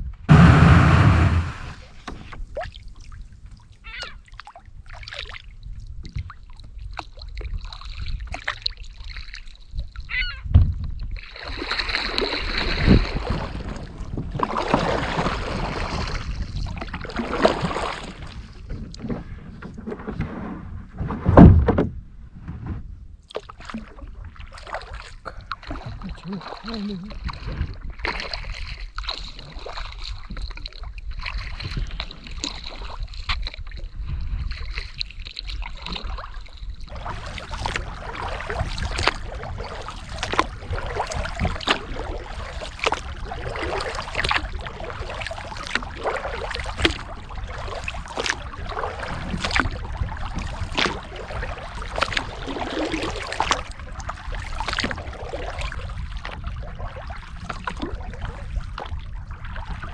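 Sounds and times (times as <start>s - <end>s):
steady low rumble: 0.0s - 2.2s
paddle splashing water: 0.2s - 10.5s, 11.1s - 21.9s, 22.6s - 59.9s.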